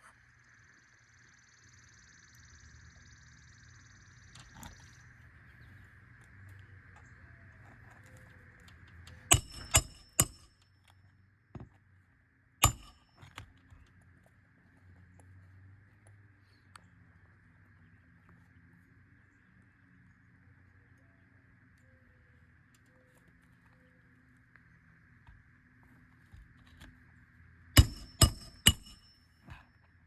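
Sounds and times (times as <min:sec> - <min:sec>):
hammer striking metal: 0:09.3 - 0:10.5, 0:12.6 - 0:13.1, 0:27.8 - 0:29.1.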